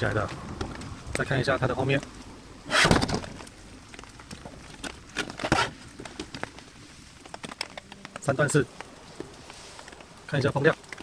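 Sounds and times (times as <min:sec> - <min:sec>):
plastic fan handling rustle: 0:02.7 - 0:11.0
light clicks and taps: 0:05.9 - 0:11.0.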